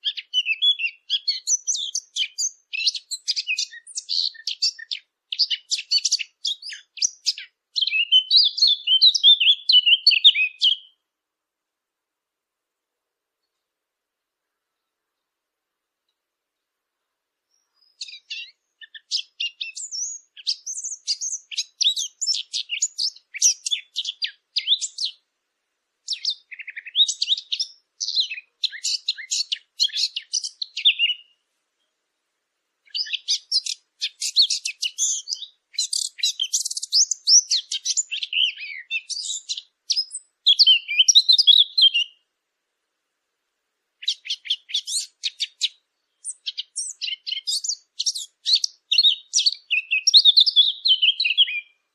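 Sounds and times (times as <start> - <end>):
songbird warbling: 0.0 - 11.0, 17.5 - 25.2, 26.1 - 31.4, 32.9 - 42.2, 44.0 - 51.8.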